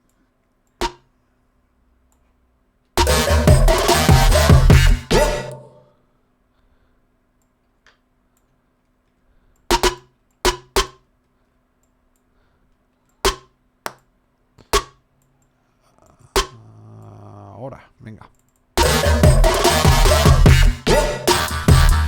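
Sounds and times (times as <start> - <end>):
electronic snare hits: 3.0 - 5.7, 9.7 - 11.0, 18.8 - 22.0.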